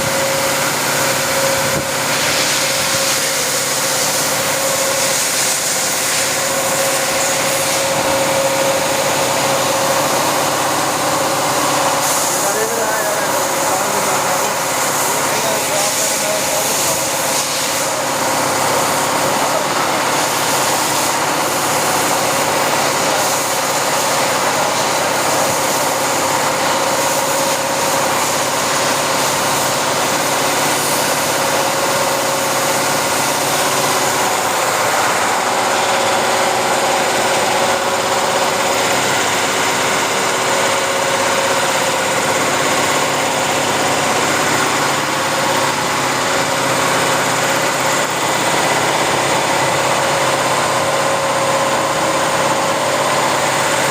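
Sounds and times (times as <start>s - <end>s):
machine humming and whining: 0.0s - 53.9s.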